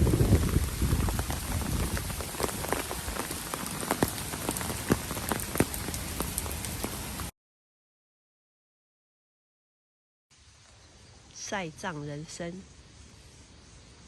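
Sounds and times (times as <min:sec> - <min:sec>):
rain falling on a surface: 0:00.0 - 0:07.3.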